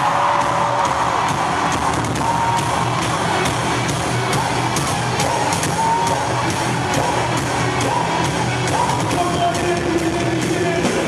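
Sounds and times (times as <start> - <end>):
crowd singing and cheering: 0.0 - 11.0
live worship band music: 0.1 - 11.0.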